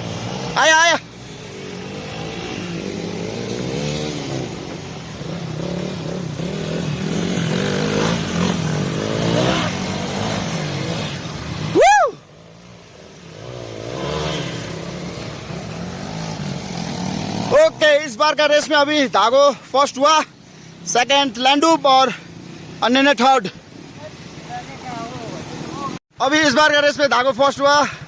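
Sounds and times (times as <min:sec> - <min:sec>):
dirt bike engines racing: 0:00.0 - 0:28.0
person crying out: 0:11.7 - 0:12.2.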